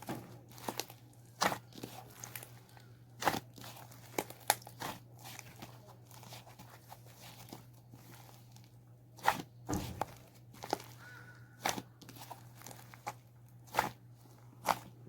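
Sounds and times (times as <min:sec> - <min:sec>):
slime crackling and popping: 0:00.0 - 0:06.6.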